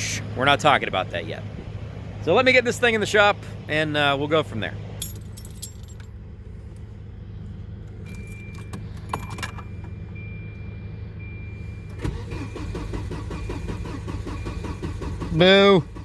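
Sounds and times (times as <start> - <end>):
keys jangling: 5.0 - 6.1, 8.1 - 9.6
starter cranking engine: 11.9 - 16.0.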